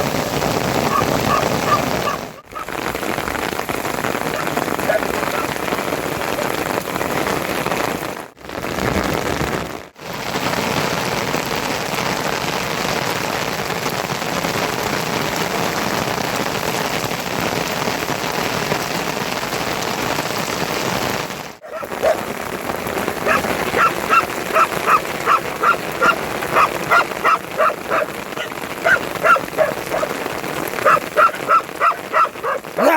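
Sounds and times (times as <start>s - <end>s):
heavy rain falling: 0.0s - 32.9s
animal calling: 0.8s - 2.9s, 4.2s - 5.8s, 21.6s - 22.4s, 23.0s - 32.9s.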